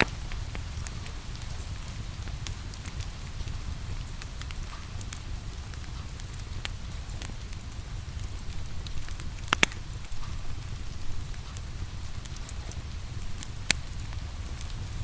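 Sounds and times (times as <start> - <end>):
rain: 0.0 - 15.0
wood fire crackling and popping: 0.0 - 15.0.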